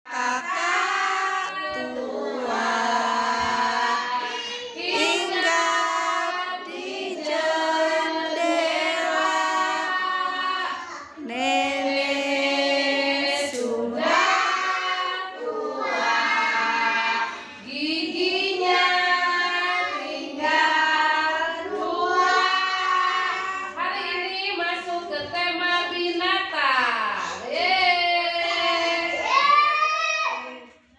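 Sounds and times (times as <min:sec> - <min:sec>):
children singing: 0:00.1 - 0:24.2.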